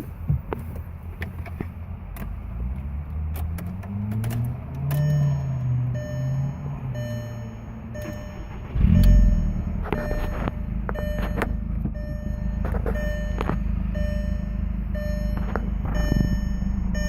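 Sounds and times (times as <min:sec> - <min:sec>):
car engine idling: 0:00.0 - 0:17.0
car warning chime beeping: 0:04.8 - 0:17.0.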